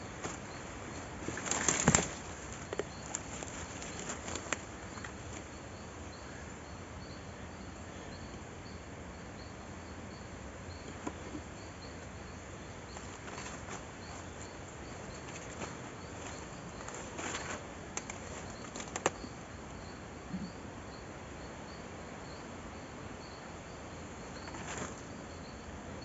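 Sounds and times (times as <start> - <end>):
high insect chirp: 0.0 - 26.0.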